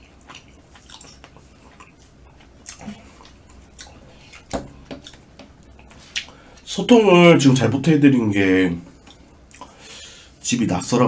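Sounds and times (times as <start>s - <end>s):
chewing with wet mouth clicks: 0.1s - 5.2s, 6.1s - 6.4s, 9.0s - 9.8s.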